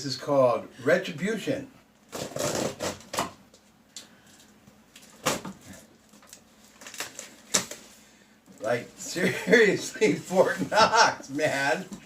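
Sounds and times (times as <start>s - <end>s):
packing tape scraping and tearing: 2.1s - 3.4s, 5.0s - 7.8s.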